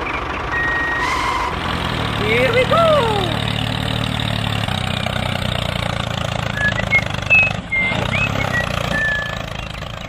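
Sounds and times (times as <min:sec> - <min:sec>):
tractor engine running: 0:00.0 - 0:10.0.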